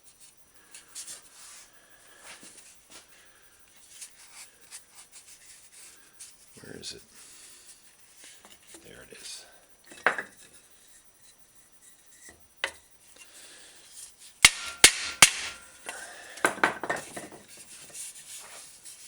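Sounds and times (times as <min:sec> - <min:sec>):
hammer striking steel: 0:14.4 - 0:15.8.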